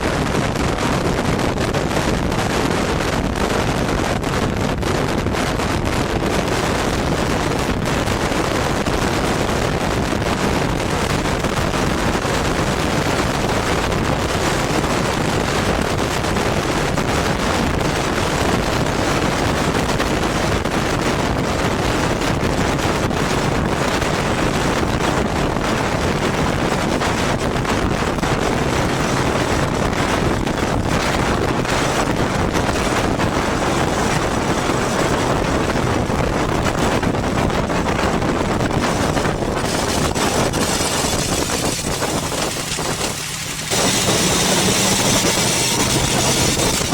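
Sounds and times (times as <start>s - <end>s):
wind rush over microphone: 0.0s - 46.9s
motorcycle engine: 25.7s - 46.9s.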